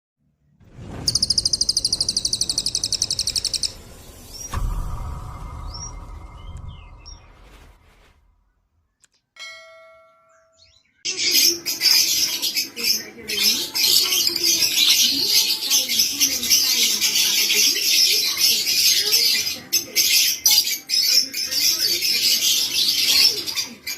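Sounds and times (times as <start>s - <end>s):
lovebirds chattering: 1.1s - 3.8s, 11.1s - 23.9s.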